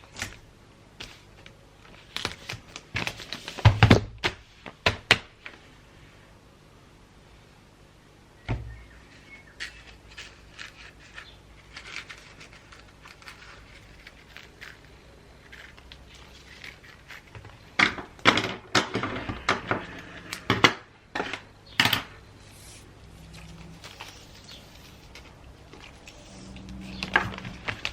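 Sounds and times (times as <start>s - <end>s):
paper crinkles and snaps: 1.0s - 4.4s, 9.6s - 18.2s
gift wrap rustling: 9.6s - 17.8s, 22.2s - 27.9s.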